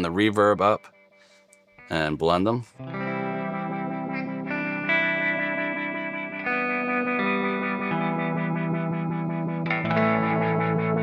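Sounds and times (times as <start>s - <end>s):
electric guitar chords with reverb: 0.0s - 11.0s.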